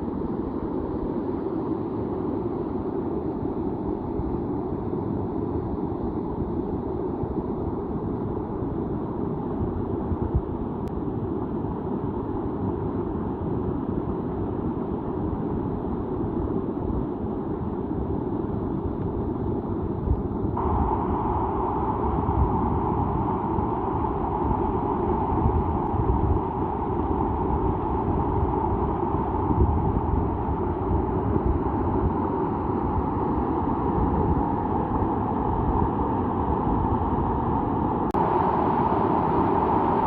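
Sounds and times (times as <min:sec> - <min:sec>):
wind buffeting microphone: 0:18.8 - 0:40.0.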